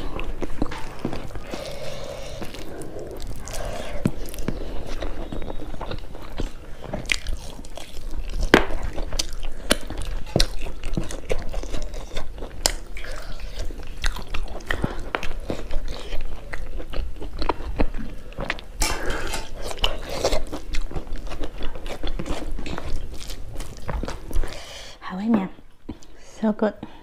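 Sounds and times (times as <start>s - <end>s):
person chewing food: 0.0s - 24.9s.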